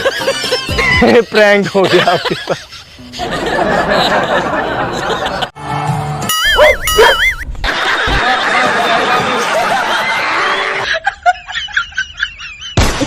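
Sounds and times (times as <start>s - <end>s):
many voices laughing: 0.0s - 5.5s, 7.6s - 12.8s
snickering laugh: 0.0s - 5.5s.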